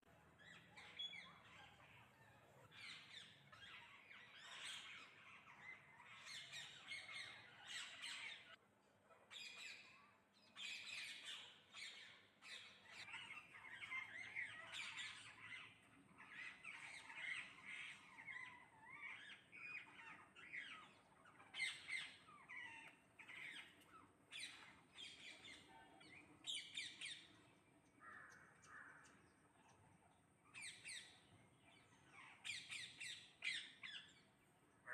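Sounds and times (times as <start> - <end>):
parrots squawking: 0.4 - 8.6, 10.6 - 27.2.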